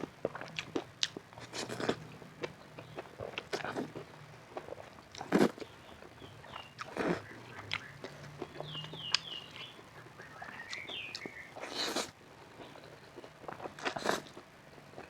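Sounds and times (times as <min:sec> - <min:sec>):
chewing: 0:00.0 - 0:15.0
loud crunches: 0:00.7 - 0:02.0, 0:04.6 - 0:05.7, 0:11.1 - 0:14.4.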